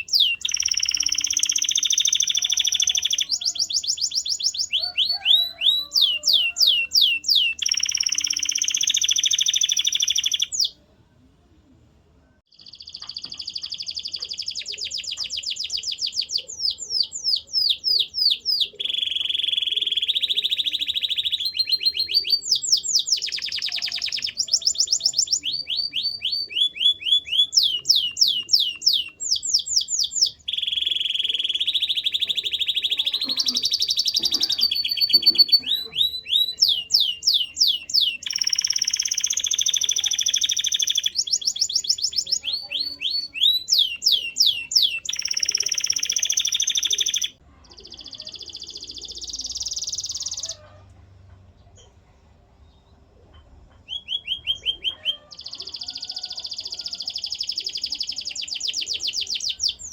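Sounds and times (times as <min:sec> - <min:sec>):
canary singing: 0:00.0 - 0:10.8, 0:12.5 - 0:50.8, 0:53.7 - 0:59.9.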